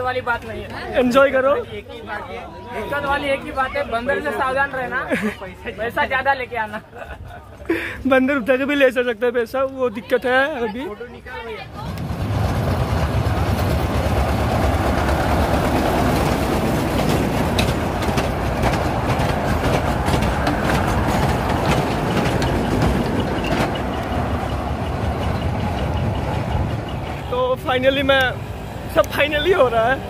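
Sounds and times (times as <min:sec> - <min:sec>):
toy train rumbling: 0:11.6 - 0:30.0
rail clicks: 0:11.7 - 0:30.0.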